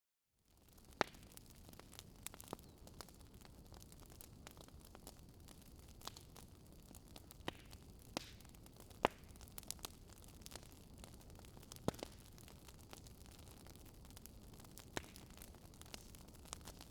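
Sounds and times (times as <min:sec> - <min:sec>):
wood fire crackling: 0:00.5 - 0:16.9.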